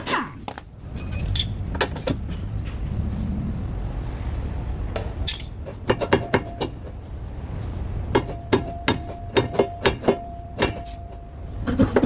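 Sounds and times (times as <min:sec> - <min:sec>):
metal tools clinking: 0:00.5 - 0:03.0, 0:05.2 - 0:05.6
sharp metallic knocks: 0:05.0 - 0:07.0, 0:08.1 - 0:11.3.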